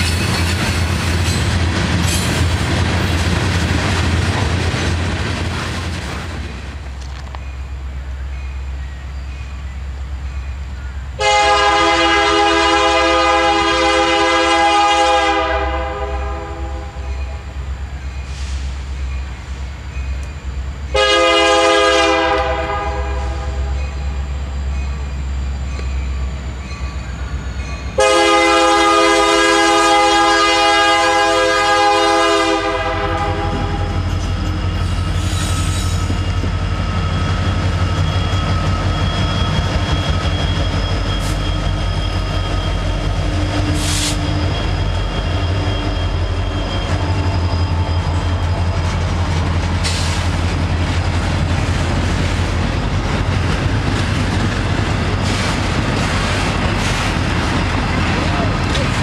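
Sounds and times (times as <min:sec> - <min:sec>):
train wheels clicking and clattering: 0:00.0 - 0:07.6, 0:33.0 - 0:59.0
diesel engines rumbling: 0:09.6 - 0:59.0
locomotive air horn blasts: 0:11.2 - 0:17.0, 0:20.9 - 0:23.8, 0:28.0 - 0:34.0.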